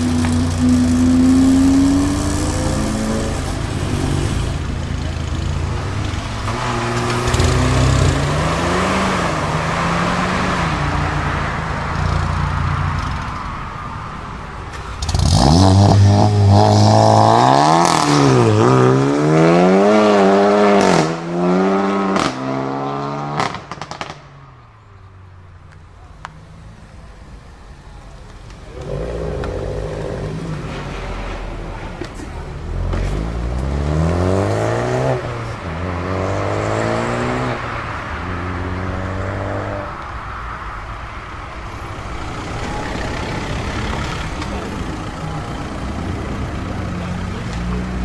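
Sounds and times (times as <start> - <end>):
car engine revving hard: 0.0 - 4.6, 6.5 - 11.0, 15.0 - 24.0, 33.1 - 37.7
car engine accelerating: 0.0 - 13.4, 28.0 - 40.0.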